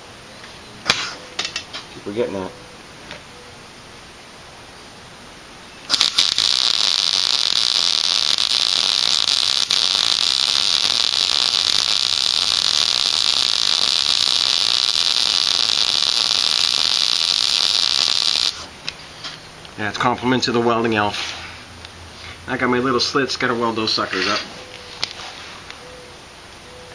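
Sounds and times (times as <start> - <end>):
welding arc sputtering pops: 5.9 - 18.7
welder sizzling hiss: 5.9 - 18.8.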